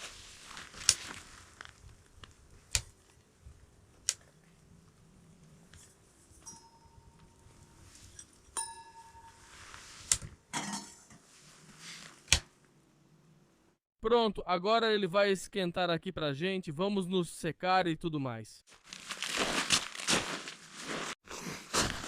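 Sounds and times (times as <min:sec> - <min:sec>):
short metallic ring: 0:06.4 - 0:09.8.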